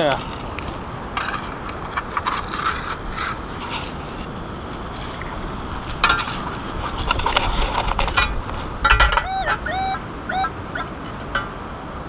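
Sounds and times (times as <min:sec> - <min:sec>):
sand scoop scraping wet sand: 0:00.0 - 0:08.8.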